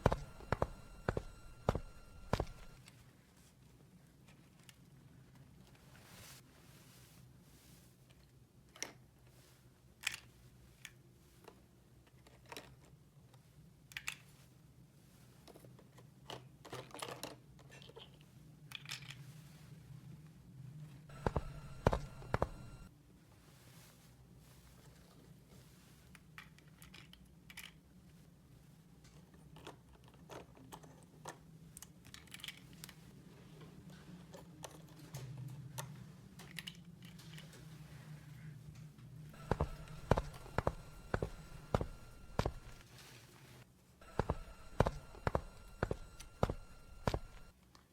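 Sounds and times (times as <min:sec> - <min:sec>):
low steady hum: 0:00.0 - 0:02.8, 0:21.1 - 0:22.9, 0:39.3 - 0:42.8, 0:44.0 - 0:47.5.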